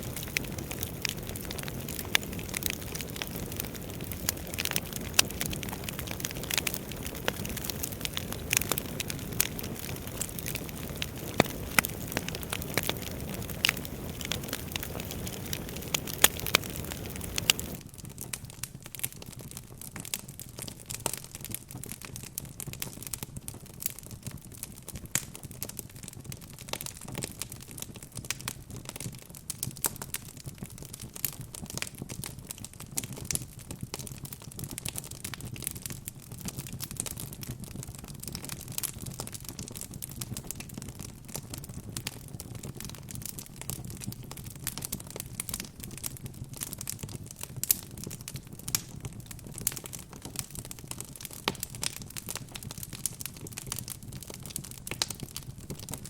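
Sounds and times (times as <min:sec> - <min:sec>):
soft rush of flames: 0:00.0 - 0:17.8
fireplace crackling and popping: 0:00.0 - 0:56.0.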